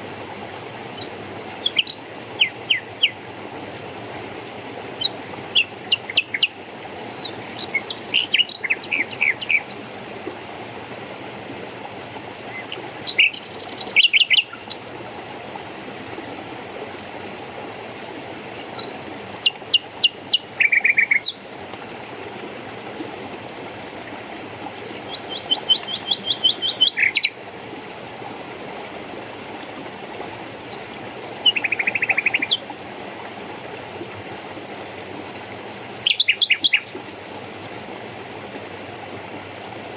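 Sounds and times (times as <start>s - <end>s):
running water: 0.0s - 39.9s
songbirds chirping: 5.0s - 9.9s, 17.8s - 21.5s, 24.9s - 27.5s, 34.0s - 37.0s.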